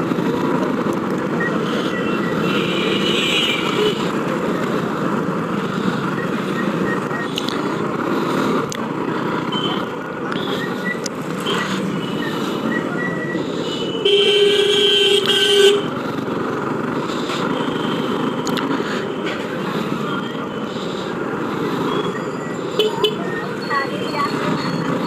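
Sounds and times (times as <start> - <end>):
traffic and wind rumble: 0.0 - 25.0
loud vehicle horn blast: 2.4 - 4.1, 14.0 - 15.9.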